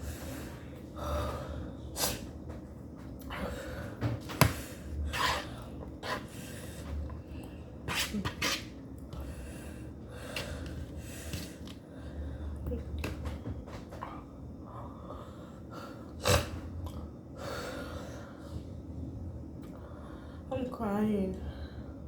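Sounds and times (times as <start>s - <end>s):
person breathing hard and sniffing: 0.0s - 2.3s, 3.2s - 8.0s, 9.2s - 12.6s, 17.4s - 18.7s.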